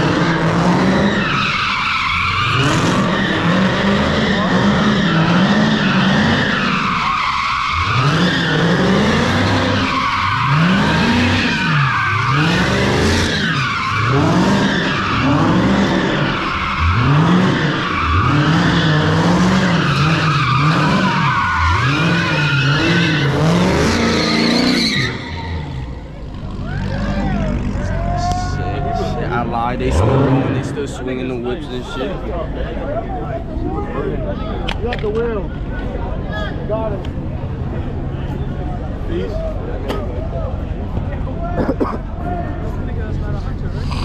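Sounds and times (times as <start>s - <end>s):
tire squeal: 0.0s - 31.0s
car engine revving: 0.0s - 32.0s.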